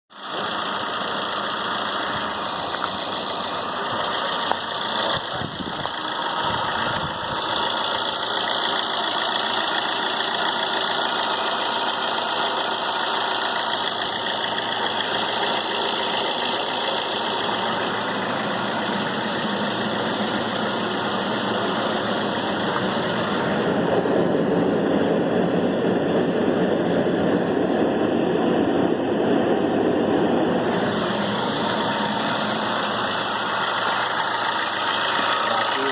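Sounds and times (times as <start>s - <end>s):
car engine idling: 0.1s - 24.9s, 27.0s - 35.9s
dense hissing noise: 30.3s - 35.9s.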